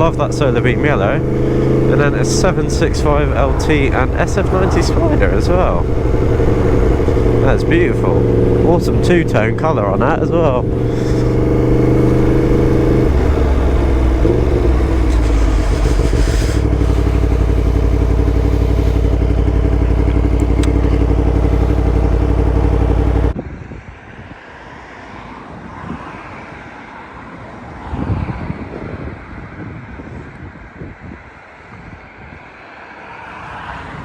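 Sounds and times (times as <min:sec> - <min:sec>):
wind noise: 0:00.0 - 0:19.9, 0:23.3 - 0:32.6, 0:33.2 - 0:34.0
motorcycle engine revving: 0:00.0 - 0:23.4.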